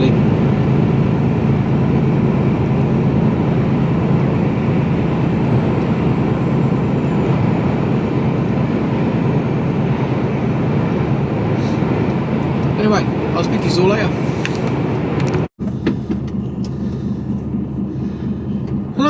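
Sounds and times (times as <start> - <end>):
lorry engine drone: 0.0 - 19.0
road noise: 0.0 - 19.0.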